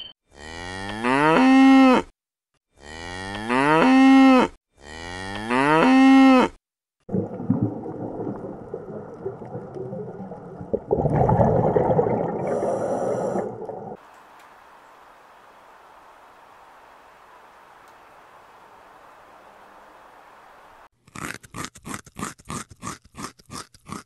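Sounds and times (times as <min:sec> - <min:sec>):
cow mooing: 0:00.4 - 0:02.0, 0:02.8 - 0:06.5
rushing crackling underwater noise: 0:07.1 - 0:14.0
faint hiss: 0:12.7 - 0:20.9.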